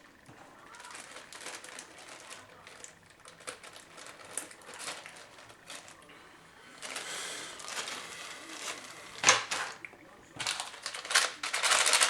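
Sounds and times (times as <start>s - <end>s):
plastic crinkling: 0.0s - 12.0s.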